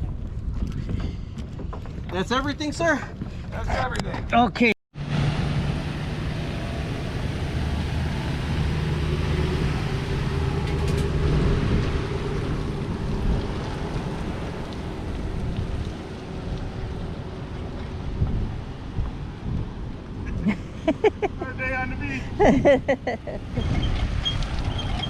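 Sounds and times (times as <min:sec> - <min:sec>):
engine running: 0:05.0 - 0:19.2.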